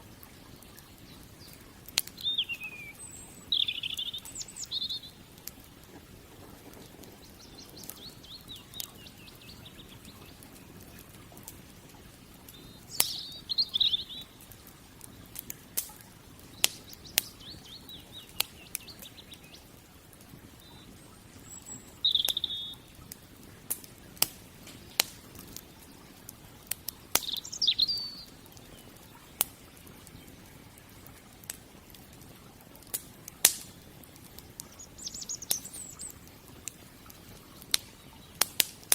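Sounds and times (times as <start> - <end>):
low steady hiss: 0.0 - 38.9
wood fire crackling and popping: 0.0 - 38.9
bird chirping: 0.5 - 5.3, 6.5 - 11.2, 12.4 - 14.4, 16.4 - 19.7, 20.5 - 23.0, 27.1 - 30.5, 34.4 - 36.6.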